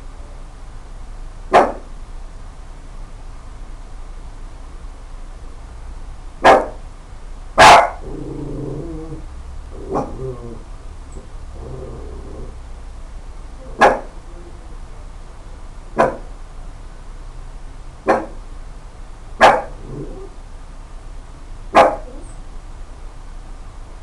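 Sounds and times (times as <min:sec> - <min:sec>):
dog barking: 0:01.5 - 0:01.9, 0:06.4 - 0:06.8, 0:07.6 - 0:08.1, 0:09.9 - 0:10.2, 0:13.6 - 0:14.2, 0:16.0 - 0:16.3, 0:18.0 - 0:18.4, 0:19.4 - 0:19.8, 0:21.7 - 0:22.3.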